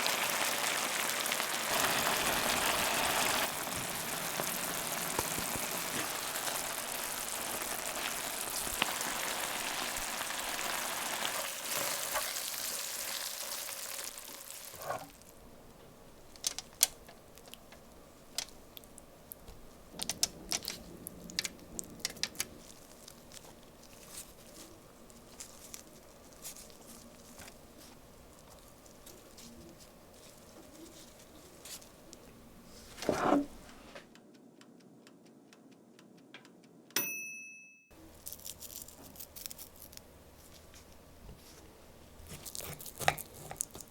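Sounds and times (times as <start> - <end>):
food sizzling in a frying pan: 0.0 - 15.2.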